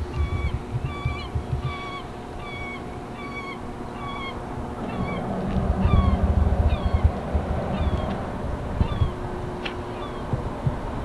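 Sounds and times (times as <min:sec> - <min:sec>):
bird honking calls: 0:00.0 - 0:07.1, 0:08.8 - 0:09.2, 0:09.9 - 0:10.3
low irregular rumble: 0:00.0 - 0:11.0.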